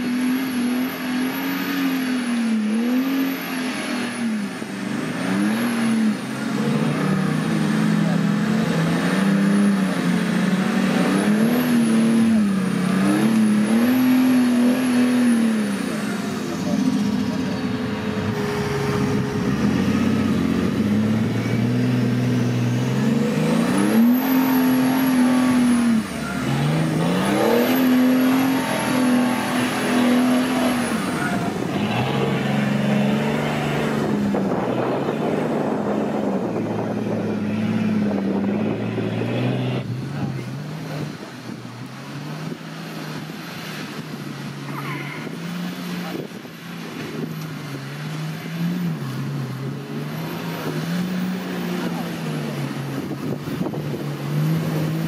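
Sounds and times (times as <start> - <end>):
off-road engine revving: 0.0 - 55.0
high whine: 16.6 - 40.4.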